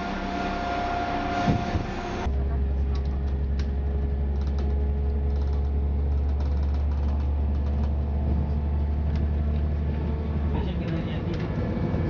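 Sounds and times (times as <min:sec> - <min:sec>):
train running low drone: 0:00.0 - 0:12.0
light clicks and rattles: 0:04.3 - 0:09.6.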